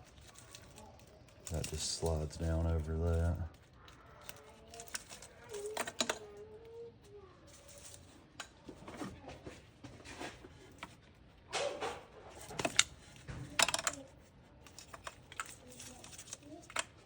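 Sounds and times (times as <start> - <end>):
plastic clips clicking and rattling: 0.1 - 6.4, 11.6 - 17.0.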